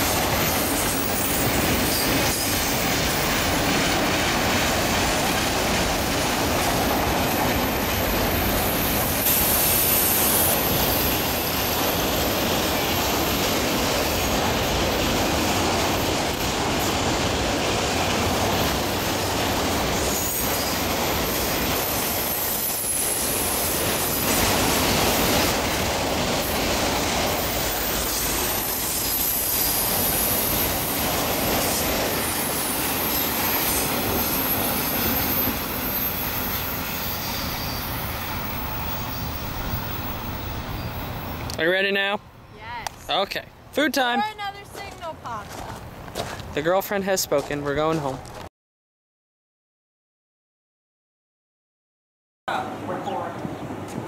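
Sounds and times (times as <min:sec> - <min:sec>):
train wheels rumbling on rail: 0:00.0 - 0:41.6
high-pitched wheel squeal: 0:32.6 - 0:41.4.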